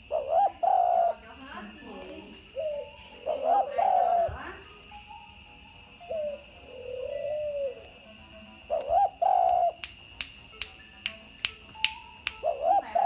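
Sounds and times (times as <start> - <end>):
dove cooing: 0.0 - 4.7, 6.0 - 9.8, 12.4 - 13.0
finger snaps: 8.8 - 12.6.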